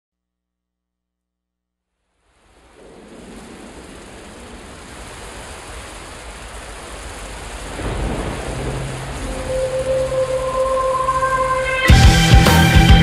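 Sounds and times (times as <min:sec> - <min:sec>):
heavy rain hiss: 0:02.0 - 0:13.0
thunder rumble: 0:02.3 - 0:12.4.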